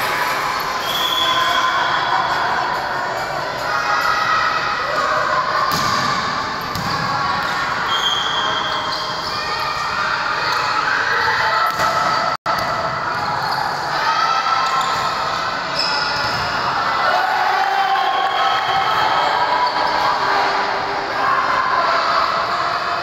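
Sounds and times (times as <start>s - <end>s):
hubbub of players and spectators: 0.0s - 23.0s
basketball bouncing on court: 6.7s - 7.1s.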